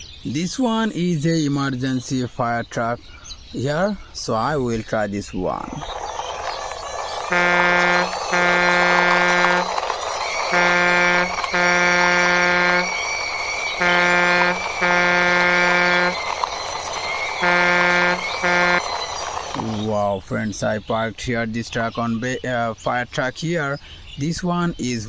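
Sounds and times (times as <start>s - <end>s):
toy buzzy horn honking: 6.1s - 19.8s.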